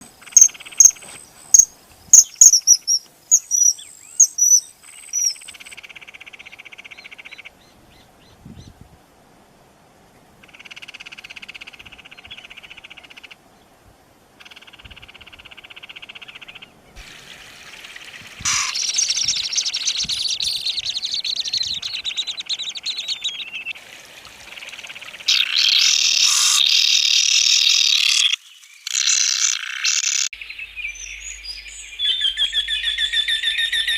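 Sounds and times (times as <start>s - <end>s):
bird buzzing calls: 17.3s - 23.7s, 24.4s - 30.3s
bird churring: 18.4s - 23.7s, 24.6s - 30.3s
bird shrill whistles: 25.6s - 26.9s.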